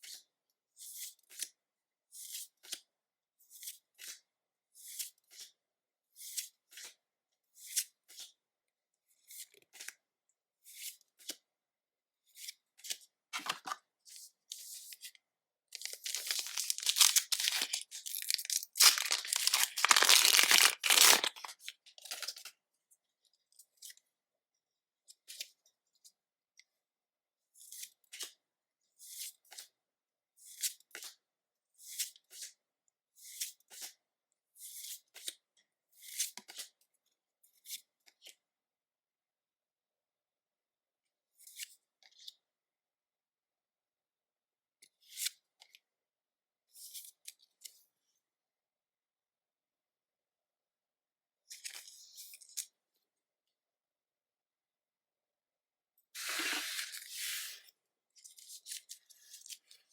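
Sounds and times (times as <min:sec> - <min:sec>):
foil wrapper tearing: 0:15.8 - 0:21.6.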